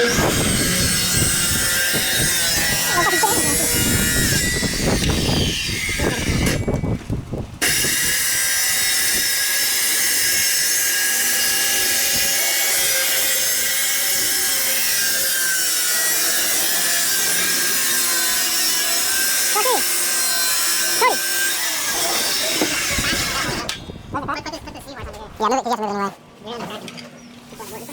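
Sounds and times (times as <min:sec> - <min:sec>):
power saw cutting wood: 0:00.0 - 0:06.9, 0:07.6 - 0:23.8.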